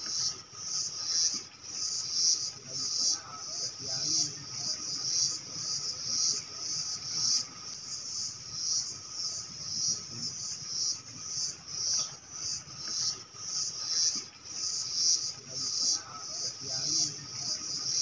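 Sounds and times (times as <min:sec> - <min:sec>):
insect pulsing buzz: 0:00.0 - 0:18.0.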